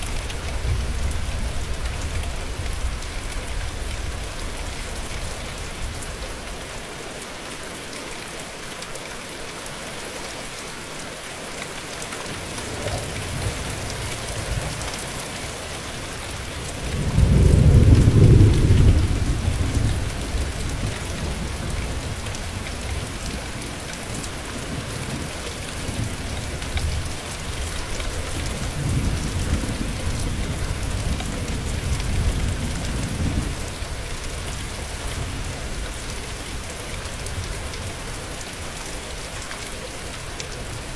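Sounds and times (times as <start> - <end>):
steady rain falling: 0.0 - 40.9
thunder rumbling: 12.3 - 23.8, 25.9 - 34.2.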